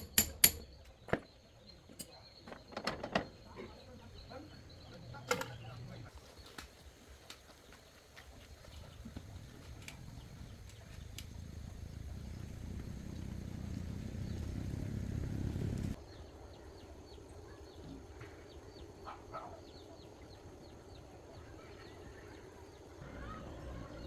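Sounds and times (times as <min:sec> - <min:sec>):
low rumble: 0:09.8 - 0:16.0.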